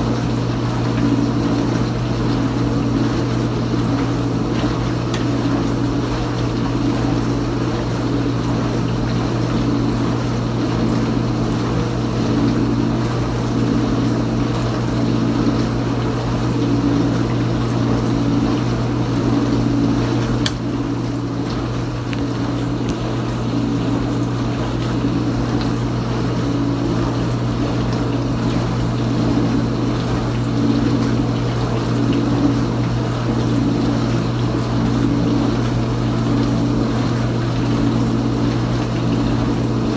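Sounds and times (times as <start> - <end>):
dishwasher pump motor hum: 0.0 - 39.9
dishwasher water swishing: 0.0 - 39.9
sharp click: 20.4 - 20.7.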